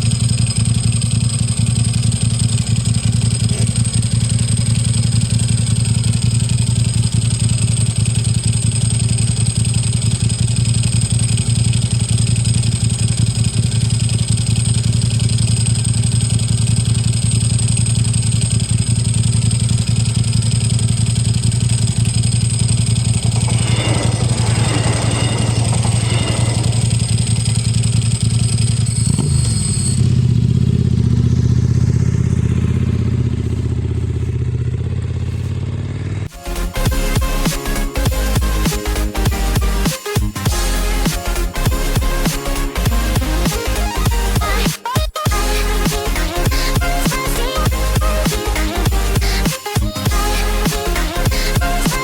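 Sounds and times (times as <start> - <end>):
level crossing warning bell ringing: 20.0 - 30.2.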